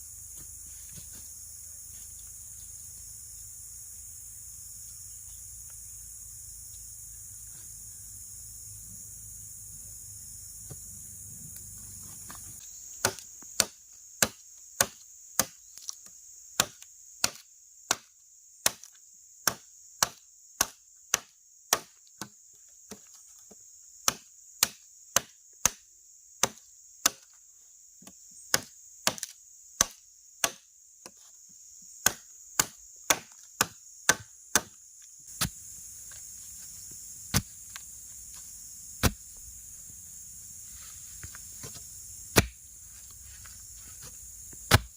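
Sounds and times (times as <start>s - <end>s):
high insect drone: 0.0s - 44.9s
blade chopping wood: 13.0s - 23.2s, 24.0s - 27.3s, 28.0s - 31.2s, 32.0s - 35.6s, 37.3s - 37.9s, 39.0s - 39.4s, 41.2s - 42.6s, 44.0s - 44.9s.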